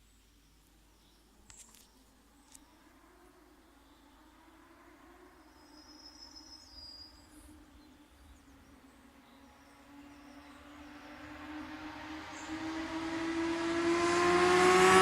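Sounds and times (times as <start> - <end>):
faint high chirp: 5.4 - 10.6
motorcycle engine approaching: 7.1 - 15.0.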